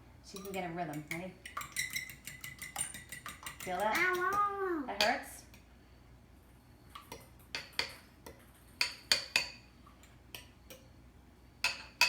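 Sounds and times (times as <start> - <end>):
whisk clinking against bowl: 0.3 - 4.4.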